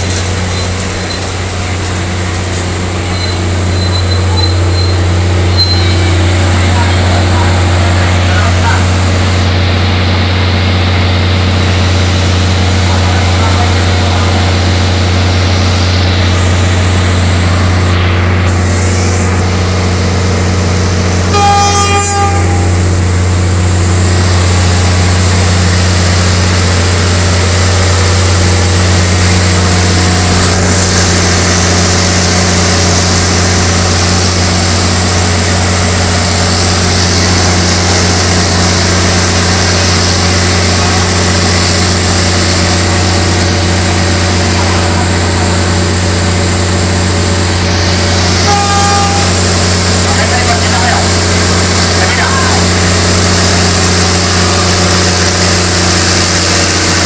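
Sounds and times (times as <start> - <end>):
train engine drone: 0.0 - 57.0
train horn toots: 21.2 - 22.9, 48.4 - 49.6.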